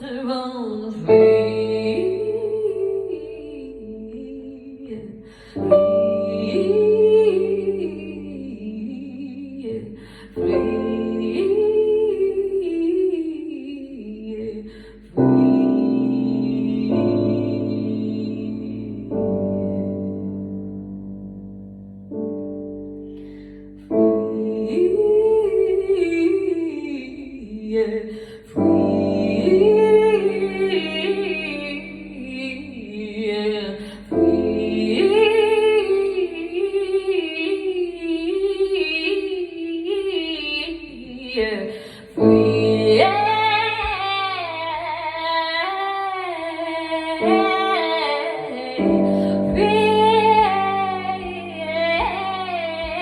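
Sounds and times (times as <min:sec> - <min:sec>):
sustained keyboard chords: 0:15.2 - 0:26.2, 0:46.9 - 0:53.0.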